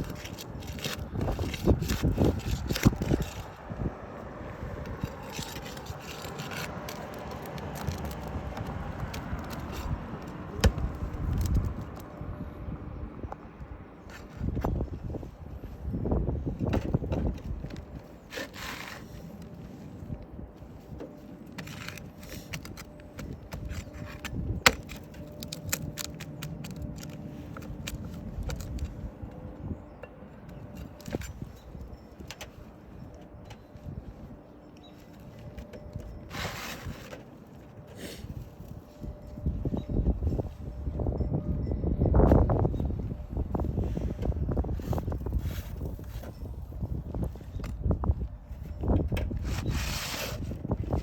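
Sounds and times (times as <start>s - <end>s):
scraping on asphalt shingles: 0.0s - 12.1s, 16.5s - 29.7s, 30.5s - 39.5s, 48.8s - 51.0s.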